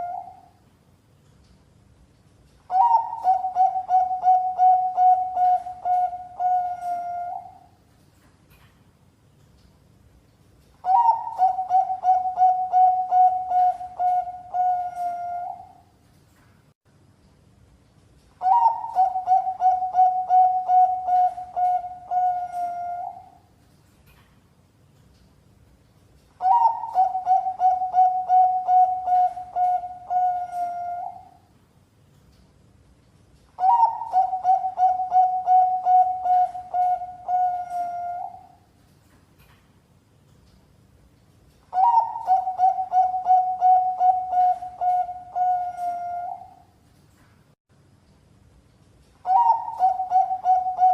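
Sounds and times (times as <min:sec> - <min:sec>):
dove cooing: 0:00.0 - 0:00.5, 0:02.7 - 0:07.7, 0:10.8 - 0:15.8, 0:18.4 - 0:23.4, 0:26.4 - 0:31.4, 0:33.6 - 0:38.6, 0:41.7 - 0:46.6, 0:49.3 - 0:50.9.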